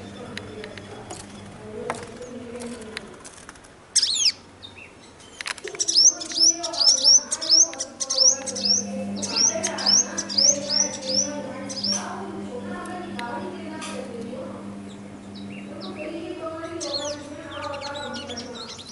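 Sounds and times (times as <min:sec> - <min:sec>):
softer lower bird calls: 0:14.6 - 0:18.9.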